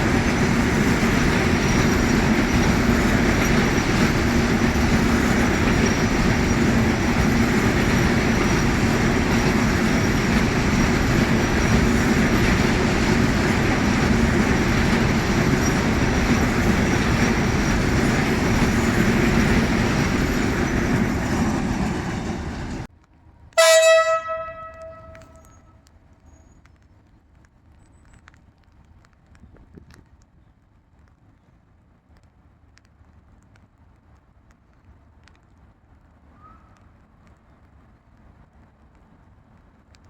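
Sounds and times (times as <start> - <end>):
train wheels rumbling on rail: 0.0 - 22.9, 23.6 - 40.0
train horn blast: 23.6 - 25.7.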